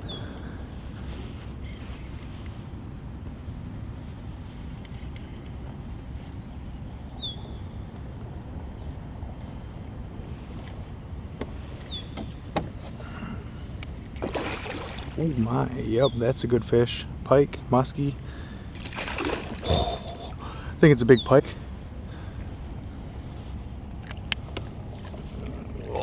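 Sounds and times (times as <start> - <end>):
high thin insect drone: 12.8 - 17.1, 17.7 - 26.0.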